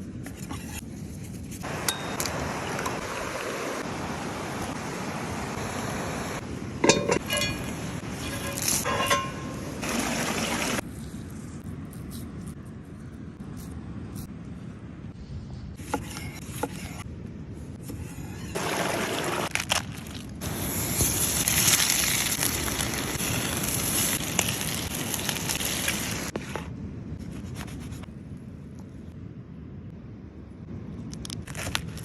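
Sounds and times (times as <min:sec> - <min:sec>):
scraping and handling noises: 0:06.8 - 0:09.6.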